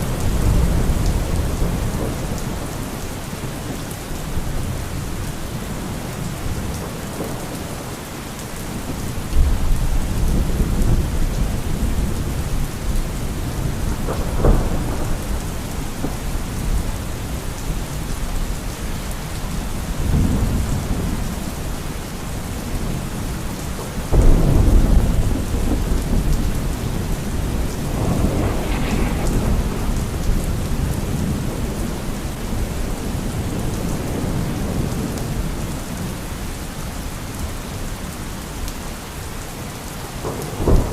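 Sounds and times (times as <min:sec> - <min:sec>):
heavy rain: 0:00.0 - 0:40.9
thunder rumbling: 0:08.7 - 0:18.6, 0:22.4 - 0:35.6, 0:40.2 - 0:40.9.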